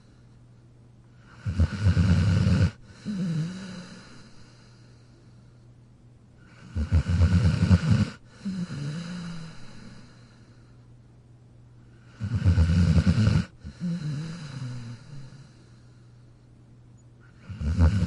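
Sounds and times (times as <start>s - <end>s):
soft breath with wavering tone: 0.0s - 1.6s, 2.7s - 6.9s, 8.0s - 11.1s, 11.7s - 12.4s, 13.5s - 17.6s
dog snoring: 1.2s - 4.6s, 6.4s - 10.2s, 12.0s - 15.6s, 17.3s - 18.0s.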